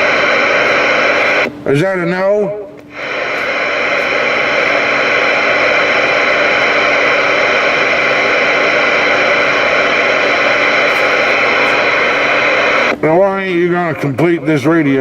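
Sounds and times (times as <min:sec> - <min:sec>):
radio static hiss: 0:00.0 - 0:02.2, 0:02.8 - 0:15.0
faint steady tones: 0:02.9 - 0:12.9.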